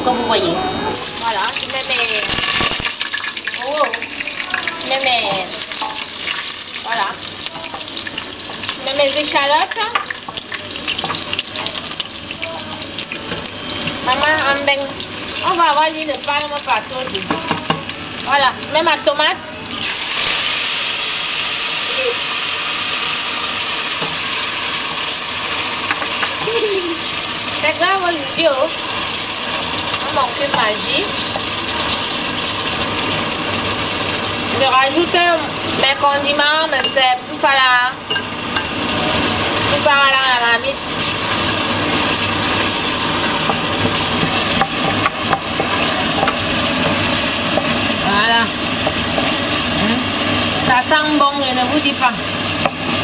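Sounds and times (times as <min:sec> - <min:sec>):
tomato sizzling in oil: 0:00.9 - 0:53.0
wooden spoon stirring pot: 0:40.9 - 0:51.0.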